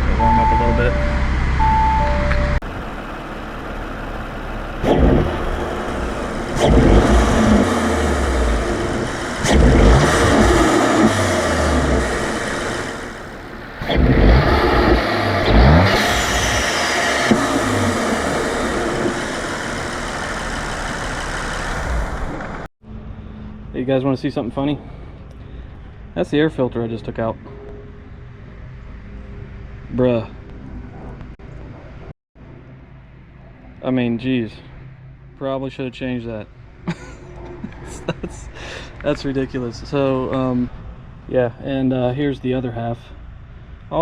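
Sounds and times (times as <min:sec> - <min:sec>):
car engine idling and revving: 0:00.0 - 0:23.7.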